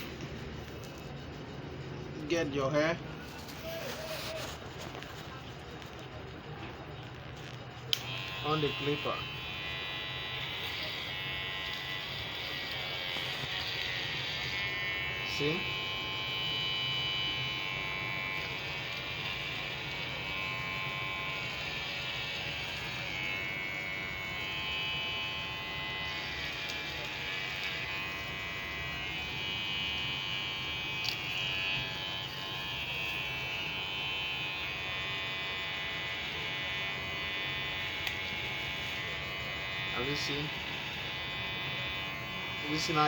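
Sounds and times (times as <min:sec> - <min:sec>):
electric hair clipper buzzing: 0:00.0 - 0:01.2, 0:02.4 - 0:06.0, 0:07.1 - 0:43.0.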